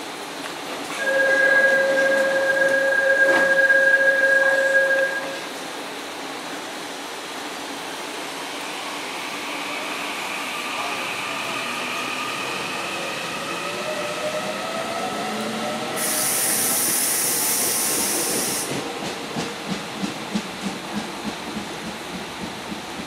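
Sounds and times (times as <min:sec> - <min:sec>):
loud air hiss: 0:07.5 - 0:18.9.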